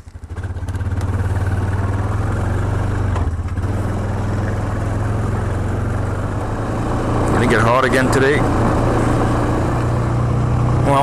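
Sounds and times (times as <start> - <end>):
atv engine idling: 0.0 - 11.0.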